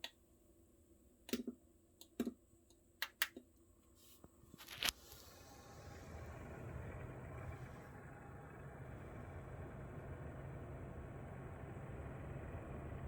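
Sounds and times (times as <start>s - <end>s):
fan rushing noise: 4.9s - 13.0s.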